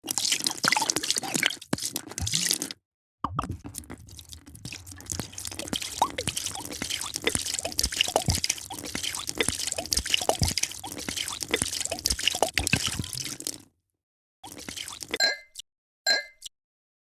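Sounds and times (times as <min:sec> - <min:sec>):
drink being poured: 0:03.3 - 0:13.6, 0:14.4 - 0:15.2.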